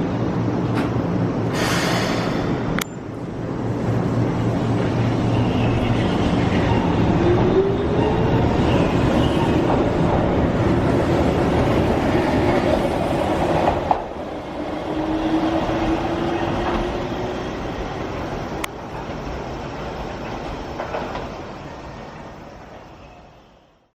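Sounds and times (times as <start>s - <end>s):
train wheels clacking on track: 12.5s - 14.2s.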